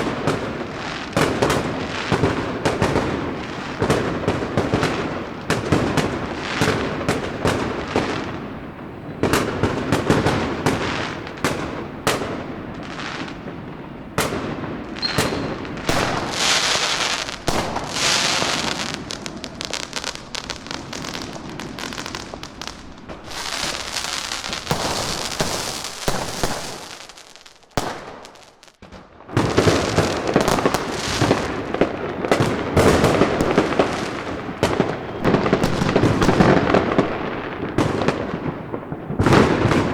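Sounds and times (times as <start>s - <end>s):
firecrackers banging: 0.0s - 39.9s
hissing crackle: 15.2s - 28.8s.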